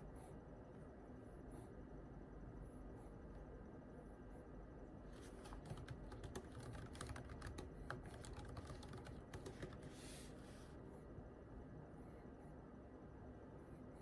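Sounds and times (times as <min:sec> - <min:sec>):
keyboard typing: 0:05.2 - 0:10.0.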